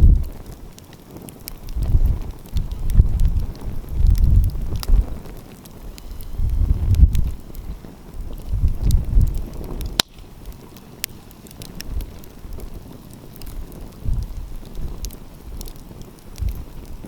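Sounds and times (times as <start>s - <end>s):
wind buffeting microphone: 0.0s - 17.0s
wood fire crackling and popping: 0.0s - 17.0s.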